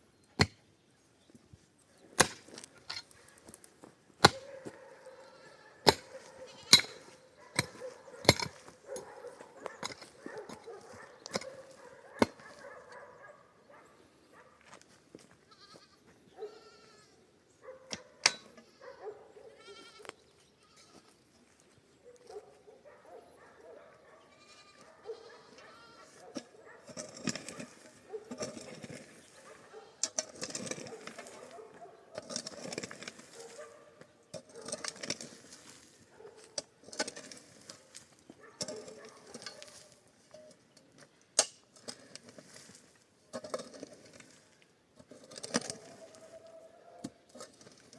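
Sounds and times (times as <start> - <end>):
livestock bleating: 5.2 - 5.8, 6.4 - 6.9, 15.5 - 17.2, 18.6 - 21.2, 24.3 - 26.1.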